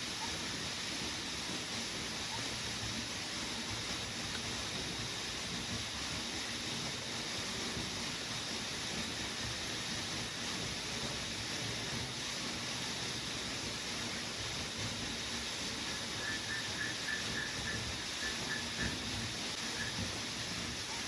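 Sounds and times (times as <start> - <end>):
heavy rain falling: 5.5 - 21.0.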